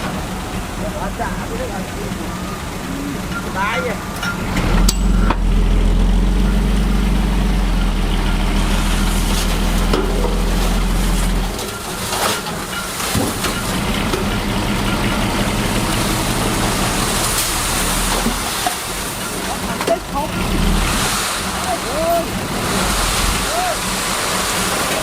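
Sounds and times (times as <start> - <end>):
lighter rough engine sound: 0.0 - 11.5
constant hiss: 0.0 - 25.0
heavy diesel engine running: 0.0 - 25.0.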